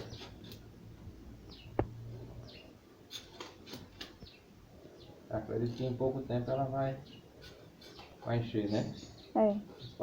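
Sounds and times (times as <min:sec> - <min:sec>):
small bird chirping: 0:01.4 - 0:03.2, 0:04.0 - 0:10.0.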